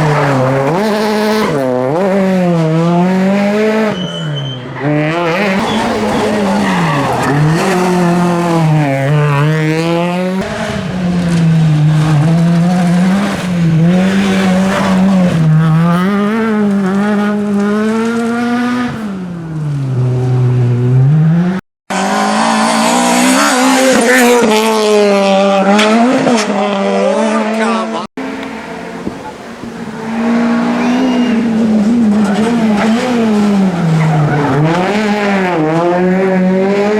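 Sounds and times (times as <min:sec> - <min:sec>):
rally car engine revving: 0:00.0 - 0:36.9
tyre squeal: 0:03.8 - 0:10.1, 0:28.2 - 0:35.0.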